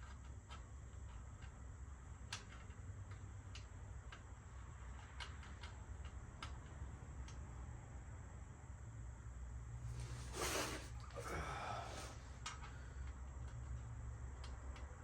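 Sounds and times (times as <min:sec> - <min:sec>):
bicycle parts clicking and tapping: 0:02.3 - 0:04.3, 0:04.9 - 0:07.4
low steady hum: 0:09.2 - 0:14.5.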